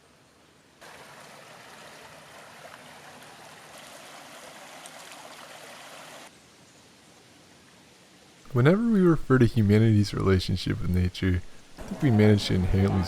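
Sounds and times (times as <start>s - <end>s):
running water rushing: 0.8s - 6.3s.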